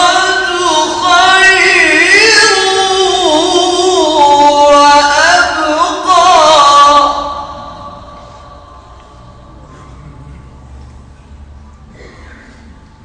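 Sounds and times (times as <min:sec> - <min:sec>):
man chanting melodically: 0:00.0 - 0:10.7.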